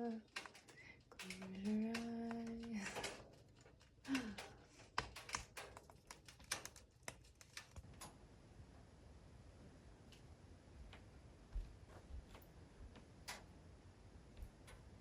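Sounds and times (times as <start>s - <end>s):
light irregular clicks and taps: 0.0s - 8.2s.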